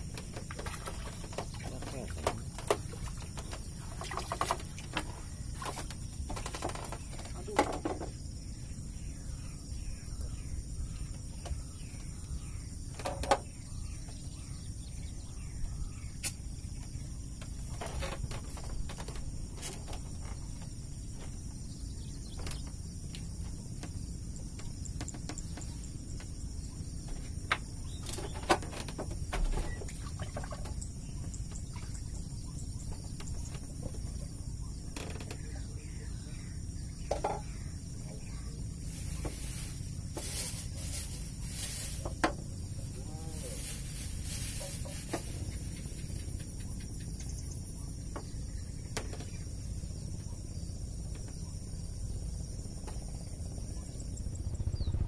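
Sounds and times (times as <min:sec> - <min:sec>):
insects chirping: 0:00.0 - 0:55.0
steady low rumble: 0:28.8 - 0:55.0.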